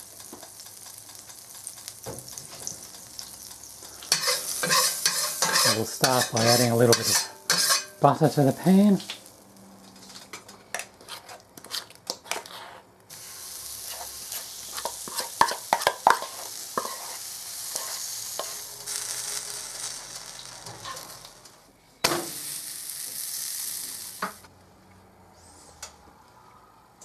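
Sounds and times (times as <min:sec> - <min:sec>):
batter sizzling in frying pan: 0:00.0 - 0:11.1, 0:13.1 - 0:24.5.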